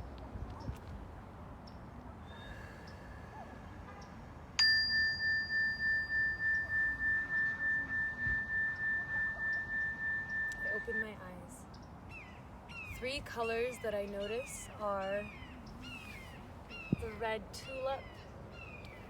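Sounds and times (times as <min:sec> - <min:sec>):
meditation bell ringing: 0:04.6 - 0:11.3.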